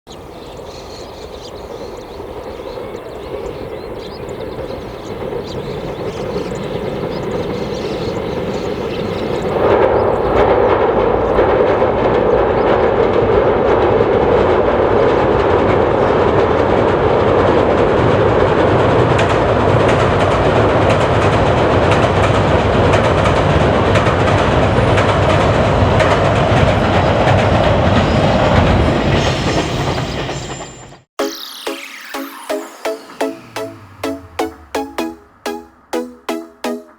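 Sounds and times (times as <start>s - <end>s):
train running past: 0.1s - 36.9s
wheels clacking over rail joints: 22.0s - 29.2s.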